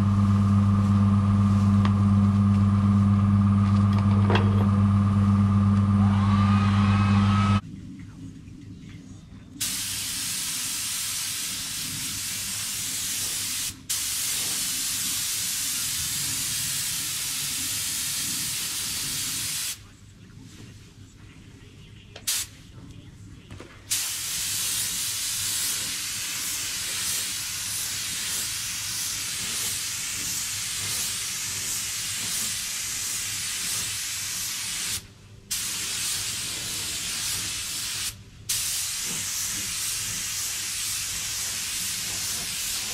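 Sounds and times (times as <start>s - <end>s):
low steady hum: 0.0s - 9.6s
paint spray gun hissing: 9.6s - 19.8s, 23.9s - 42.9s.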